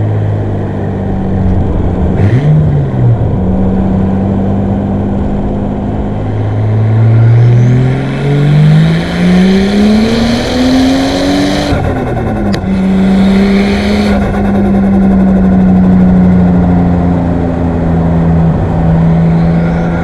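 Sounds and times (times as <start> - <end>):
car engine revving: 0.0 - 20.0
turbo chirp: 9.3 - 16.4.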